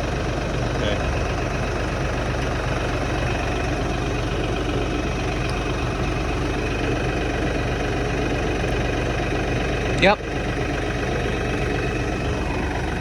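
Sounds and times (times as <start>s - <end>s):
tractor diesel engine idling: 0.0s - 13.0s.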